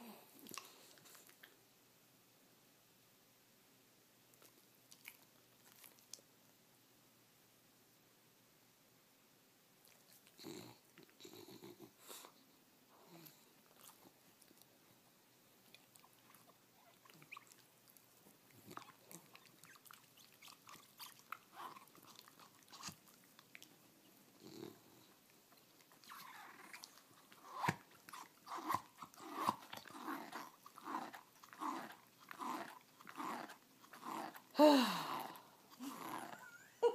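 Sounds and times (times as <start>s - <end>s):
dog chewing wetly: 15.6s - 34.6s.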